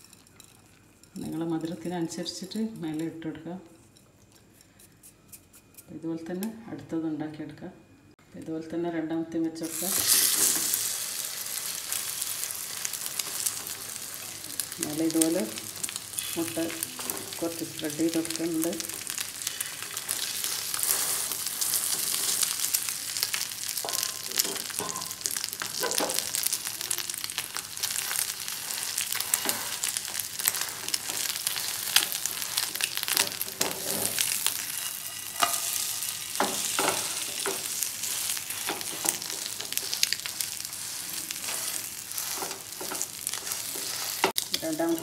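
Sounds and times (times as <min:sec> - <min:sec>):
pastry sizzling in a pan: 0:09.6 - 0:45.0
spatula scraping a pan: 0:19.4 - 0:22.7, 0:27.8 - 0:44.4.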